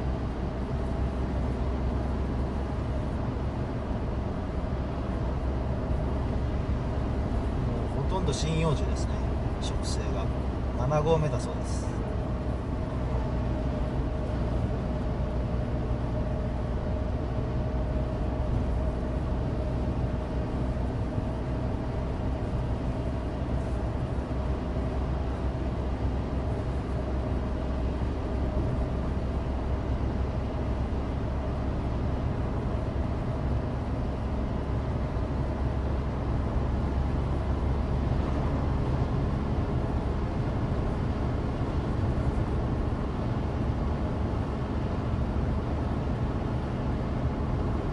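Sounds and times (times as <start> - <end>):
car engine running: 0.0 - 47.9.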